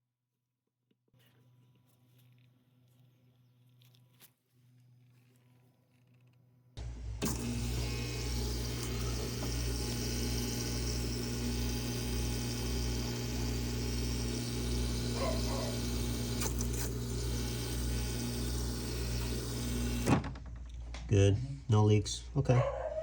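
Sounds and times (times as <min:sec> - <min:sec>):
refrigerator electrical hum: 0:06.8 - 0:21.6.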